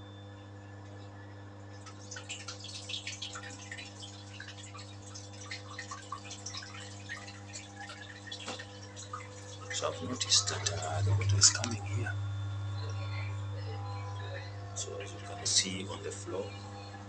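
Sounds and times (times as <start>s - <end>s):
washing machine spinning hum: 0.0s - 17.0s
water splashing and dripping: 1.7s - 11.8s.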